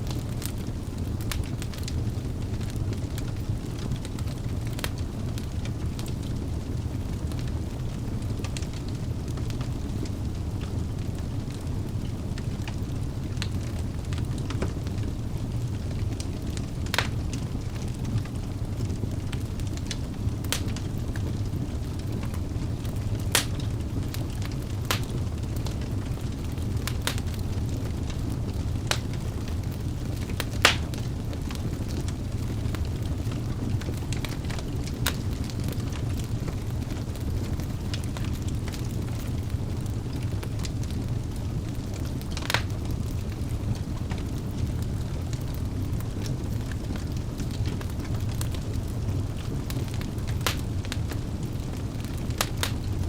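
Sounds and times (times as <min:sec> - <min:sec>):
logs crackling and popping: 0:00.0 - 0:53.0
low rumble of flames: 0:00.0 - 0:53.0.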